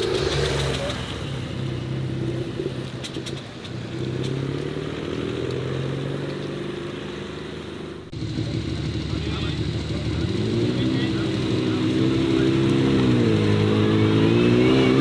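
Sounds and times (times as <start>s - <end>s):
car engine running at low revs: 0.0s - 15.0s
different engine running: 0.0s - 15.0s.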